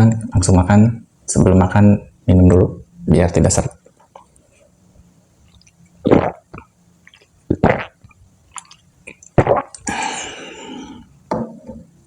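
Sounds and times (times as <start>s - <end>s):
swallowing gulps: 5.4s - 11.1s.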